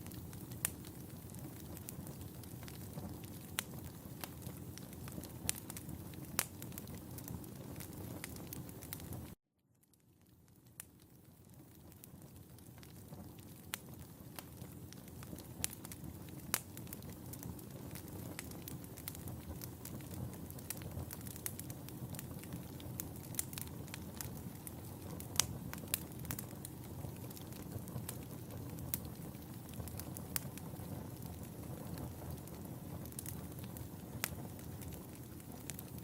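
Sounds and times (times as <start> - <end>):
fire crackling and popping: 0.0 - 36.0.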